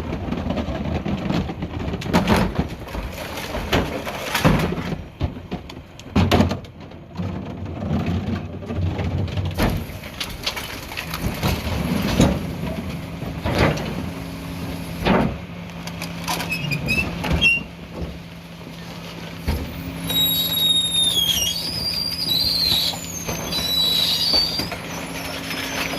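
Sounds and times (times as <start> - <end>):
bins clanking and banging: 0.0 - 25.9
garbage truck diesel engine: 0.0 - 25.9
high-pitched squeals and whistles: 19.9 - 25.9.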